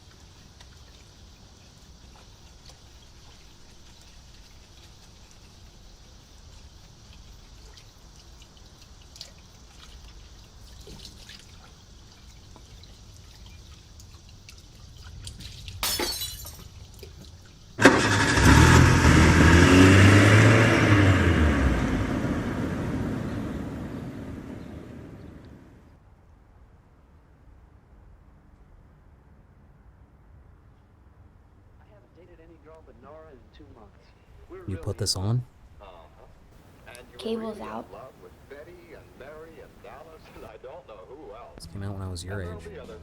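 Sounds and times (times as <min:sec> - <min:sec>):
car engine: 0:17.8 - 0:25.8.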